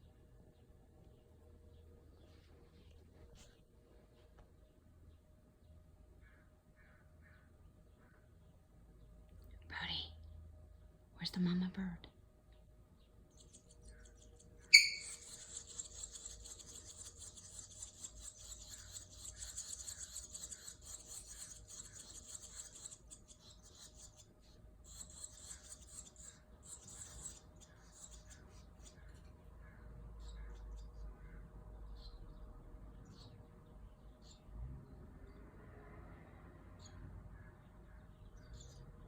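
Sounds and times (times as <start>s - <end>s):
baby birds begging chorus: 13.3s - 31.4s.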